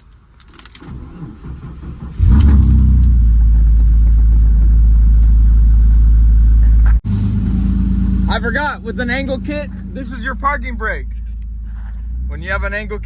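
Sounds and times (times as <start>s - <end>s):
engine cranking: 0.4s - 4.4s, 7.1s - 12.2s
car engine running: 2.2s - 12.8s.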